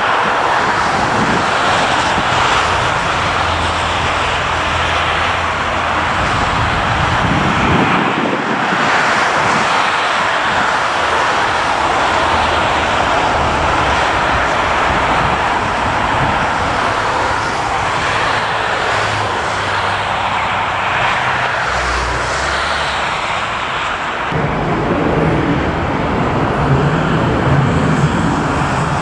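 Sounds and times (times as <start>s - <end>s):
jet engines rushing: 0.0s - 29.0s
deep rumble: 0.4s - 7.8s, 24.2s - 29.0s.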